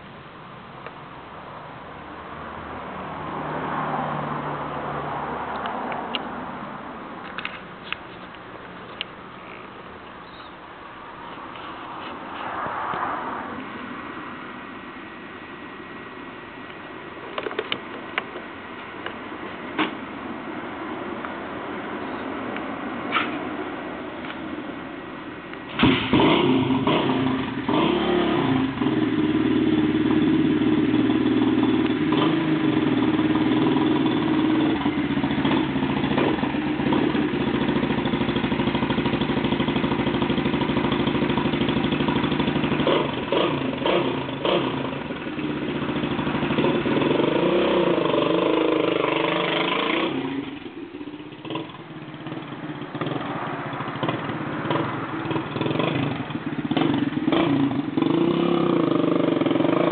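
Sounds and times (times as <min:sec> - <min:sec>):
motorcycle engine revving: 0:25.7 - 0:59.9
motorcycle engine running: 0:25.8 - 0:59.9.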